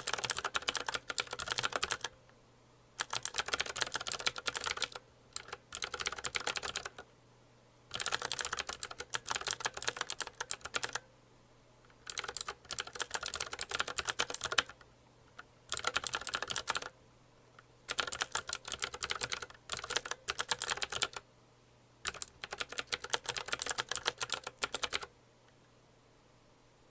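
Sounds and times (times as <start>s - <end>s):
mechanical keyboard typing: 0.0s - 2.2s, 3.0s - 7.1s, 7.9s - 11.0s, 11.9s - 17.0s, 17.9s - 21.2s, 22.0s - 25.1s.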